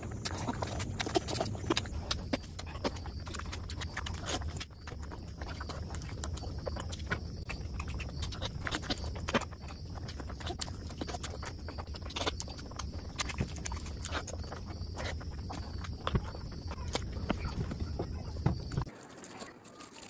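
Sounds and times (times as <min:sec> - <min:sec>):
wet chewing and lip-smacking: 0:00.0 - 0:20.0.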